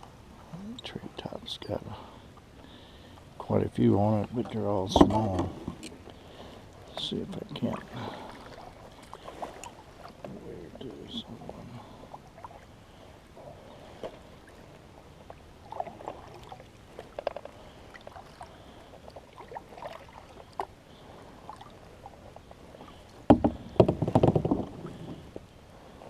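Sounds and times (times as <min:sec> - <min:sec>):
knocks against boat hull: 0:23.3 - 0:24.8.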